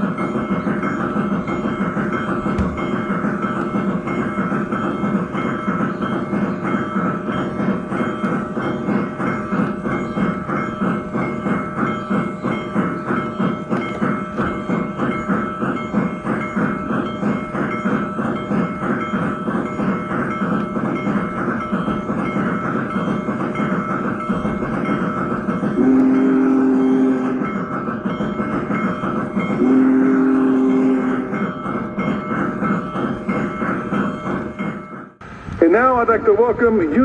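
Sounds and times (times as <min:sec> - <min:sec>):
steam locomotive chuffing: 0:00.0 - 0:37.0.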